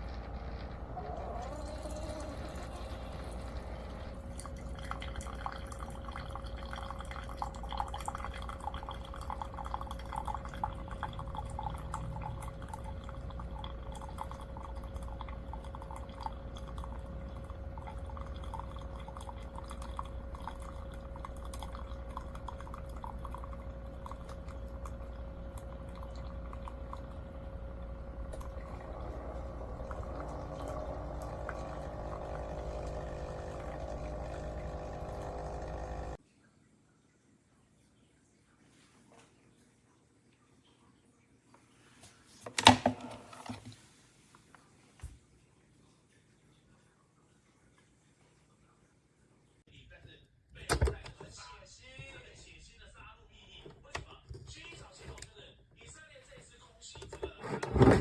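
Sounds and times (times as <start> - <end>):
coffee dripping into cup: 0.0 - 36.2
coffee maker humming: 0.0 - 36.2, 57.2 - 58.0.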